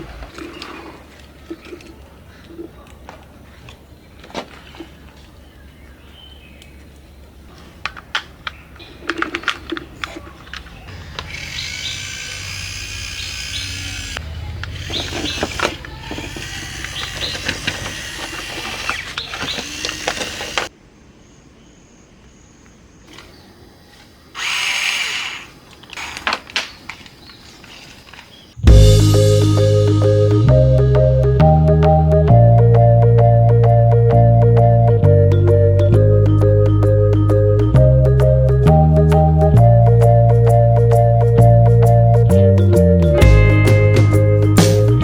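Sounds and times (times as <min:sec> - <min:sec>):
small electric motor whirring: 0:10.9 - 0:20.7, 0:24.4 - 0:26.2.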